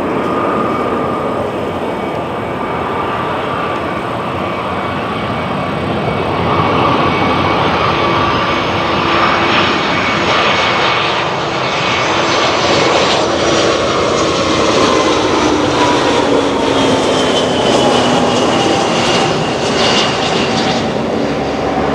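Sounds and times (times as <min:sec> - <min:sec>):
jet roar with whining tones: 0:00.0 - 0:21.9.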